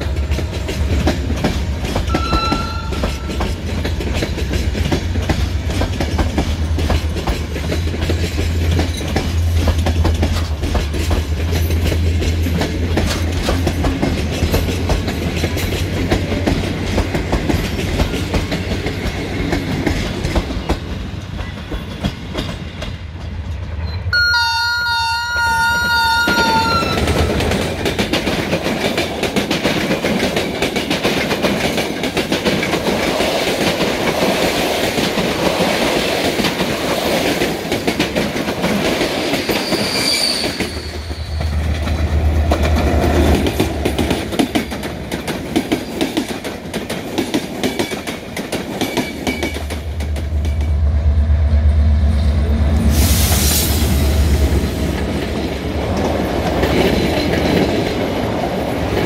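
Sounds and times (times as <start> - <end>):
train wheels clattering: 0.0 - 23.9, 25.8 - 51.0, 52.1 - 59.0
locomotive drone: 0.0 - 28.7, 49.3 - 59.0
locomotive horn: 2.1 - 3.5, 24.1 - 27.4
wheel squeal: 39.4 - 41.6.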